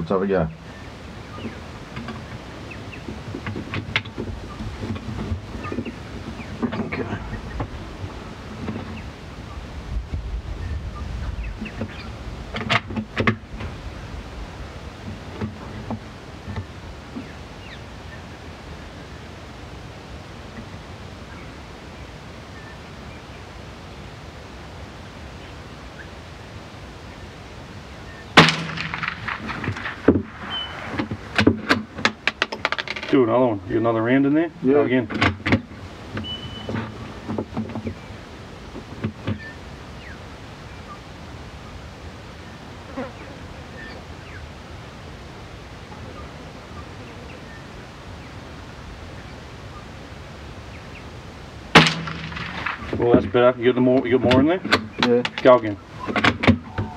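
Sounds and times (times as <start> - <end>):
steady hiss: 0.0 - 56.9
faint bird chirps: 21.2 - 23.5, 30.4 - 31.0, 36.2 - 38.2, 39.4 - 41.8, 42.4 - 44.5, 45.8 - 50.0
rifle shot: 28.4 - 31.0, 51.7 - 53.0
sharp clicks and knocks: 28.4 - 33.2, 54.0 - 56.9.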